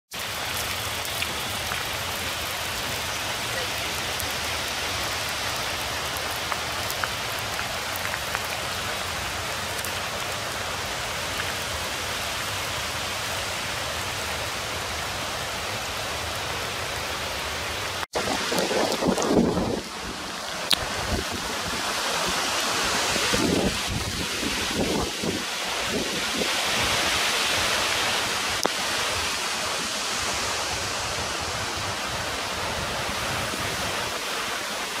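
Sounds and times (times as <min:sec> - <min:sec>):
raindrops ticking nearby: 0:00.1 - 0:12.6, 0:20.5 - 0:21.4, 0:28.6 - 0:28.8
steady rain hiss: 0:00.1 - 0:35.0.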